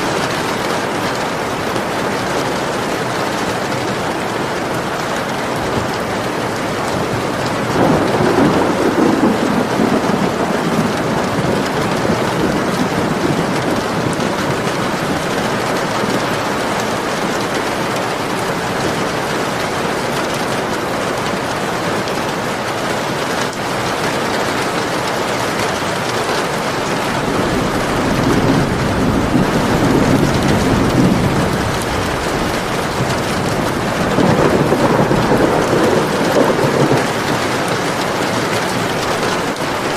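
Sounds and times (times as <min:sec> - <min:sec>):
steady rain falling: 0:00.0 - 0:39.9
rolling thunder rumbles: 0:05.6 - 0:17.5, 0:26.5 - 0:39.9.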